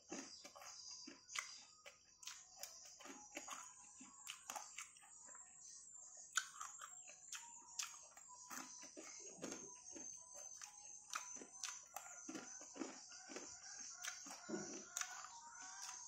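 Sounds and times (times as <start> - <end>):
wet chewing and mouth clicks: 0.0 - 16.0.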